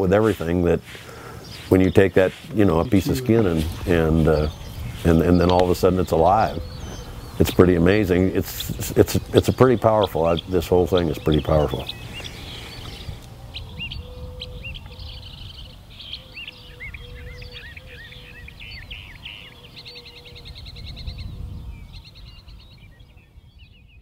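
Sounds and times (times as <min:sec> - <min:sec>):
birds chirping and trilling: 0:00.0 - 0:24.0.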